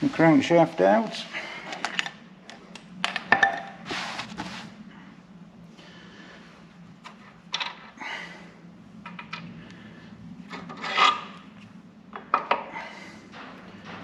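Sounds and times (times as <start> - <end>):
metal scraping and rubbing: 10.5 - 11.6.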